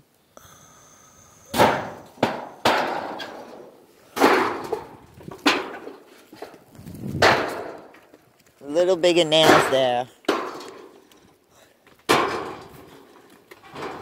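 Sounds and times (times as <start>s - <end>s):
hammer striking tin roofing: 1.5s - 6.4s, 7.2s - 8.0s, 9.3s - 11.0s, 12.1s - 14.0s.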